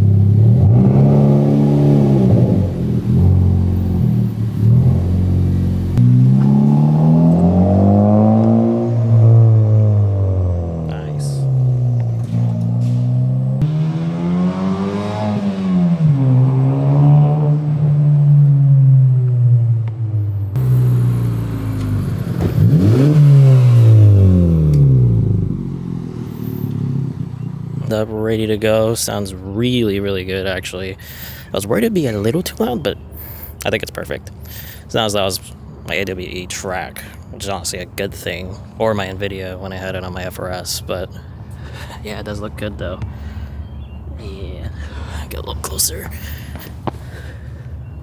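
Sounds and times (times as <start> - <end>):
car engine revving: 0.0 - 36.9.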